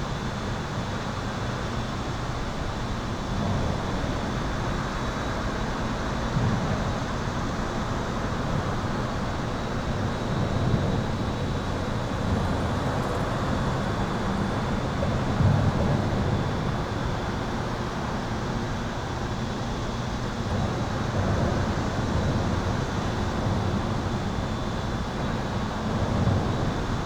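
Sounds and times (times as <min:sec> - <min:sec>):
highway traffic: 0:10.4 - 0:18.5.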